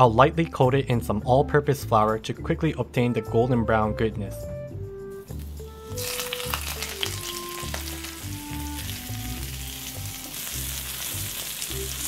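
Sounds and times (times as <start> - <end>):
prawns sizzling in a frying pan: 5.3 - 12.0.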